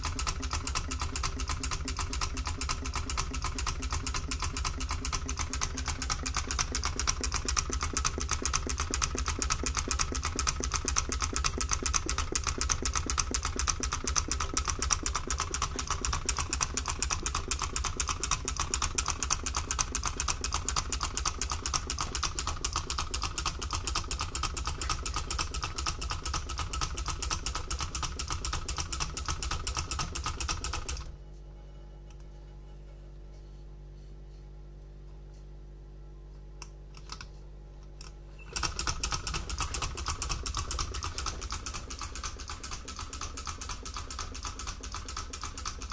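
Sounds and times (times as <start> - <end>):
faint hum: 30.9 - 44.0.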